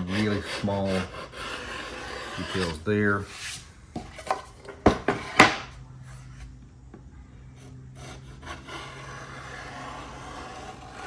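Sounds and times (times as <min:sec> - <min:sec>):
chisel scraping wood: 0:00.0 - 0:06.5, 0:07.6 - 0:11.0.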